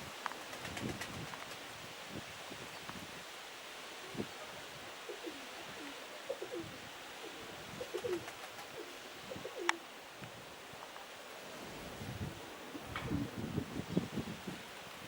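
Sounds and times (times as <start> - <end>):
steady hiss: 0.0 - 15.0
pigeons cooing: 5.1 - 9.9.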